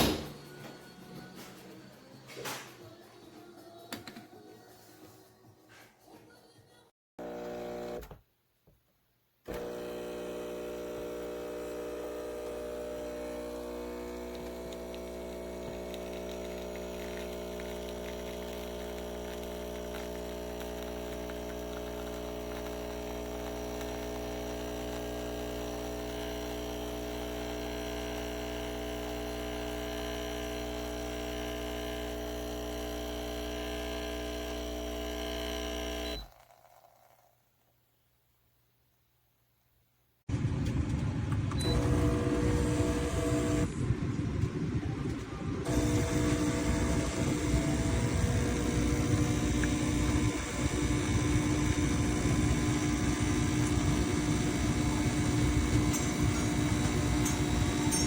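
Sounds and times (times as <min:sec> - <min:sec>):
espresso machine pump humming: 0:07.2 - 0:08.1, 0:09.5 - 0:37.3, 0:41.6 - 0:43.8, 0:45.6 - 0:58.0.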